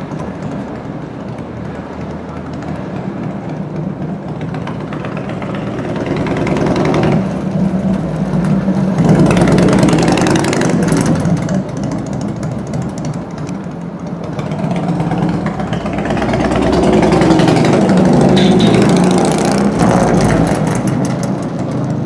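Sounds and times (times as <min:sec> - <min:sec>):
motorcycle engine revving: 0:14.3 - 0:21.4.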